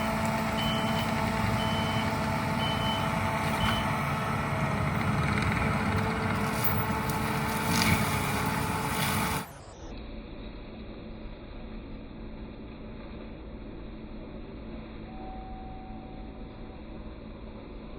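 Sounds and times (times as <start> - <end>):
skid steer running: 0.0 - 9.9
reversing alarm beeps: 0.1 - 4.8.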